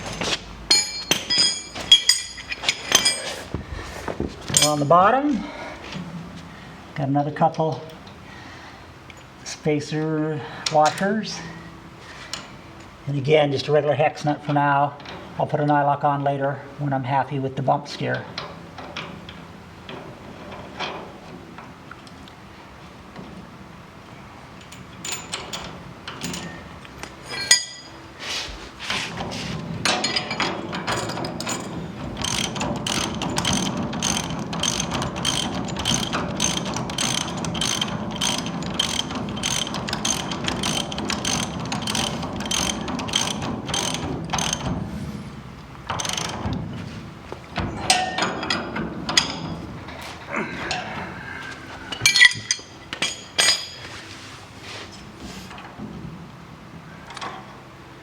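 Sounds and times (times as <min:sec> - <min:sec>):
ratchet wrench clicking: 0:32.2 - 0:44.6.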